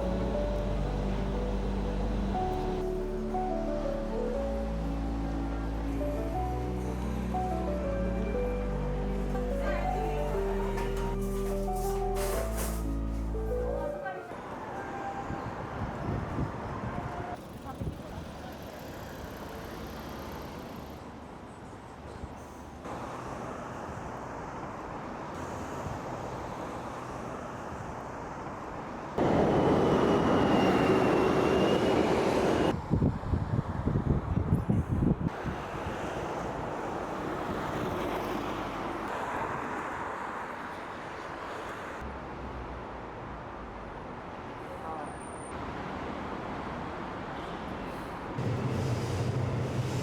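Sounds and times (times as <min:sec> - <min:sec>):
traffic noise: 0:00.0 - 0:50.0
loud noise with low pulses: 0:48.4 - 0:50.0.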